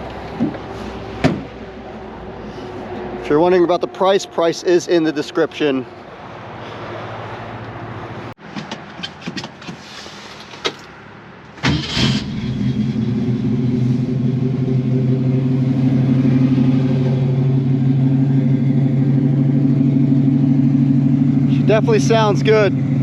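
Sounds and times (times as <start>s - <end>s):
car engine cranking and idling: 11.5s - 23.0s.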